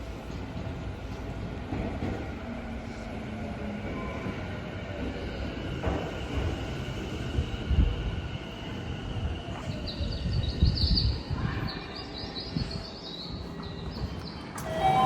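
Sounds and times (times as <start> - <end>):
train cars knocking and thudding: 0.2 - 2.4
train rumble: 5.8 - 15.0
high wavering squeal: 14.6 - 15.0.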